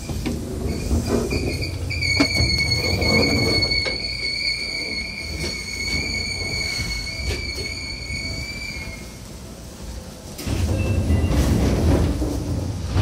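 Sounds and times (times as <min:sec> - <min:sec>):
wheels rumbling on track: 0:09.1 - 0:13.0
rail-joint clacks: 0:10.4 - 0:13.0.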